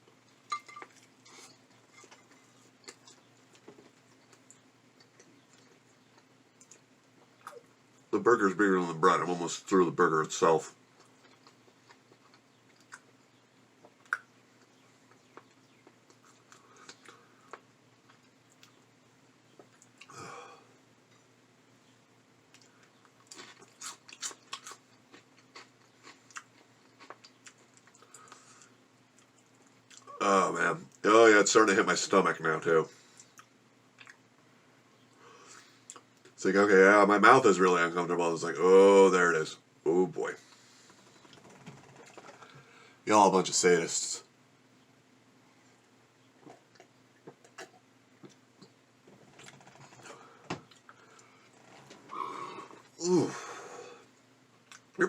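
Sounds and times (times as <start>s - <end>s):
open-mouth chewing: 11.0s - 13.2s, 13.8s - 18.8s, 22.5s - 30.2s, 46.4s - 53.0s.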